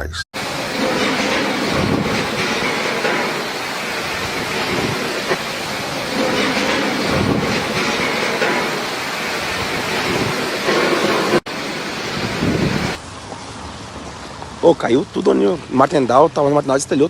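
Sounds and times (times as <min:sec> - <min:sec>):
storm wind on microphone: 0:00.4 - 0:13.0
heavy rain: 0:00.4 - 0:15.8.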